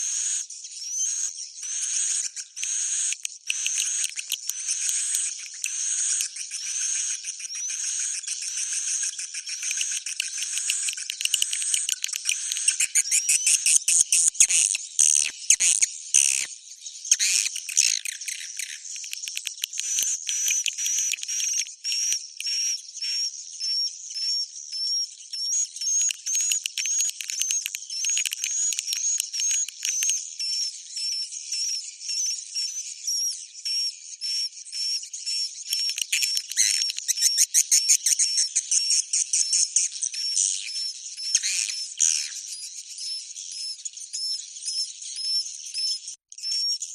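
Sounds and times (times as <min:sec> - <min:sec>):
swiftlets twittering and chirping: 0:00.0 - 0:32.9, 0:33.6 - 0:46.9.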